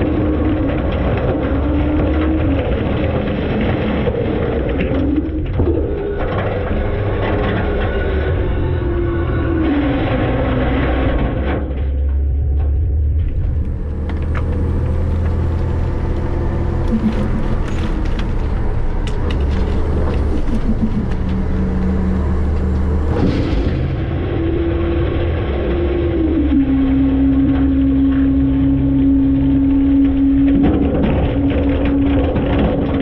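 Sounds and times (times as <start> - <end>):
garbage truck engine rumbling: 0.0 - 33.0
rattles and knocks: 10.5 - 25.4, 27.2 - 33.0
hydraulic whines: 13.2 - 32.4.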